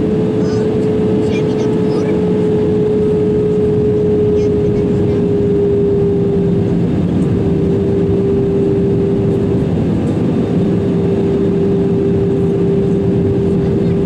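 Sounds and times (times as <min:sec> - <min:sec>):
jet engines droning: 0:00.0 - 0:14.0.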